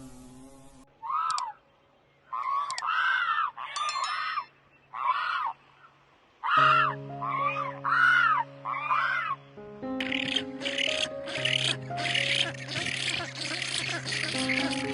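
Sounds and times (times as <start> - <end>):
animal giving harsh calls: 10.0 - 14.9.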